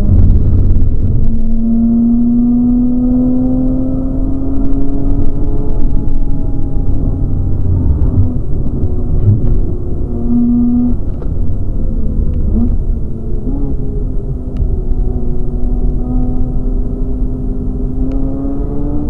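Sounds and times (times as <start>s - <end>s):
road and tyre noise: 0.0s - 19.0s.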